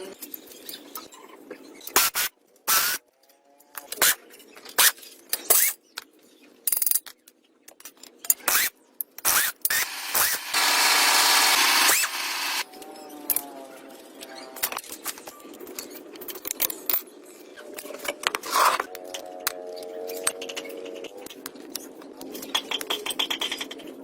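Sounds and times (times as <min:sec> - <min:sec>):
power tool running: 0:09.7 - 0:12.6.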